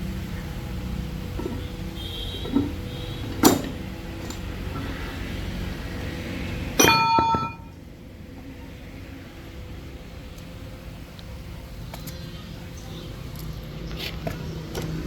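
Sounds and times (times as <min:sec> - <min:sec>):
low steady rumble: 0:00.0 - 0:08.5
metal clang ringing: 0:01.4 - 0:01.8, 0:02.4 - 0:04.4, 0:06.8 - 0:07.8
sharp metal knock: 0:06.8 - 0:07.8.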